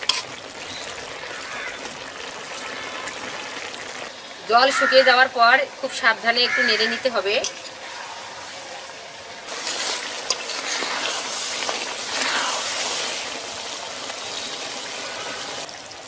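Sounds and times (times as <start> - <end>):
curry sizzling in oil: 0.0 - 16.0
spatula scraping a pan: 9.5 - 13.3.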